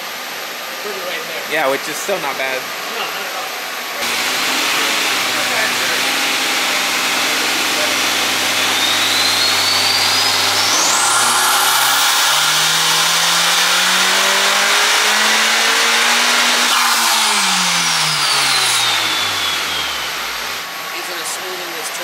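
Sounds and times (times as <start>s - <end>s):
car engine revving: 4.0s - 20.8s
turbo whine: 4.0s - 20.8s.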